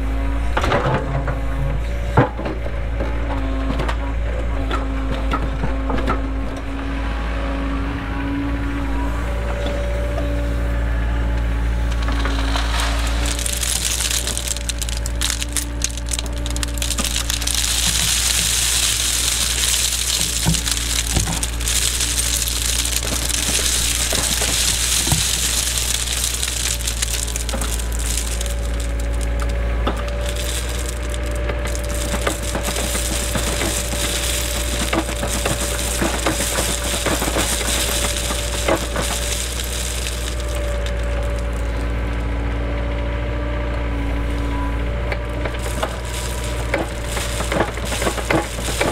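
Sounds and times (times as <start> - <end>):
excavator engine hum: 0.0 - 48.9
bucket crunching stone and soil: 11.8 - 42.4, 45.2 - 48.9.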